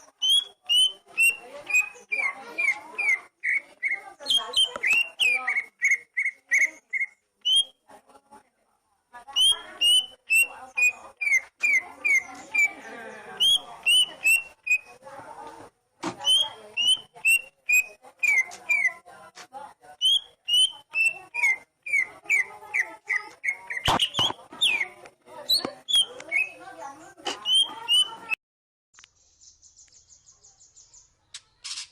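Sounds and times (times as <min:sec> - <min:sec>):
magpie-robin whistled notes: 0:00.1 - 0:07.8, 0:09.3 - 0:12.8, 0:13.4 - 0:15.0, 0:16.2 - 0:19.0, 0:20.0 - 0:26.6, 0:27.4 - 0:28.4.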